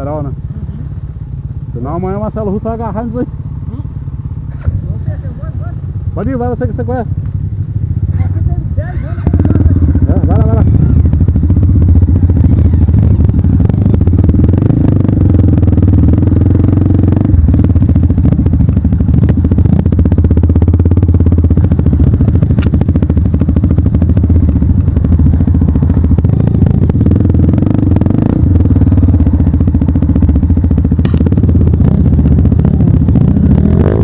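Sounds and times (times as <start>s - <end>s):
motorcycle engine running loudly: 0.0s - 34.0s
sharp knocks over rough ground: 31.0s - 31.4s.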